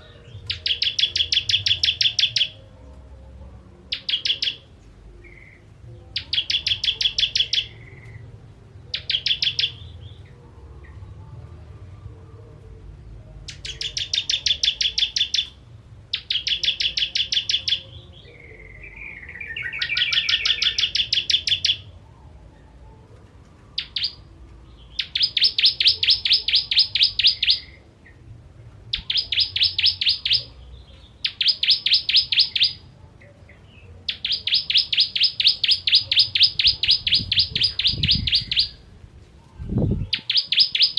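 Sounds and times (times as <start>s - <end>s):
bird twittering: 0.0s - 2.6s, 3.9s - 5.6s, 6.2s - 8.2s, 8.9s - 10.2s, 13.5s - 21.9s, 23.8s - 24.3s, 24.9s - 28.2s, 28.9s - 32.9s, 34.0s - 38.8s, 39.9s - 40.9s
bird singing sharp high notes: 13.5s - 21.9s, 23.8s - 27.8s, 28.9s - 32.9s, 34.1s - 38.8s, 39.9s - 40.9s.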